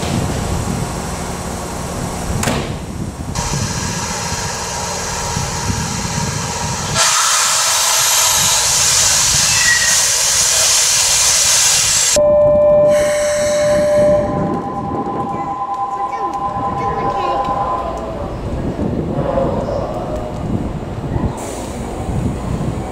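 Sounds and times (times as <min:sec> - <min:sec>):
electric train wheels rumbling: 0:00.0 - 0:22.9
loud rushing hiss: 0:03.4 - 0:12.2
steady tone: 0:12.2 - 0:19.2.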